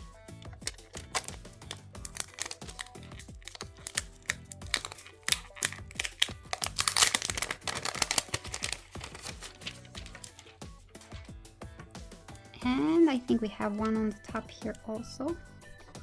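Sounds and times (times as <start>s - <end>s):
background music: 0.0s - 16.0s
plastic film peeling and crinkling: 0.5s - 11.3s.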